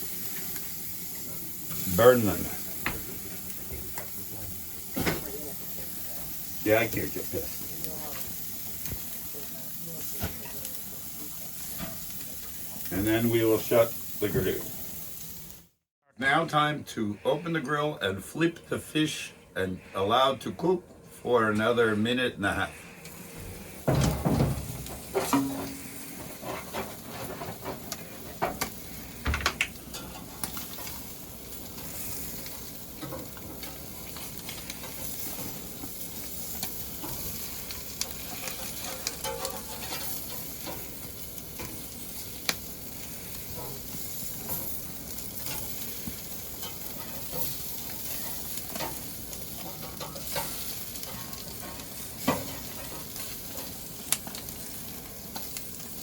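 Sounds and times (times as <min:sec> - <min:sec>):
fish sizzling on grill: 0:00.0 - 0:15.8, 0:22.5 - 0:56.0.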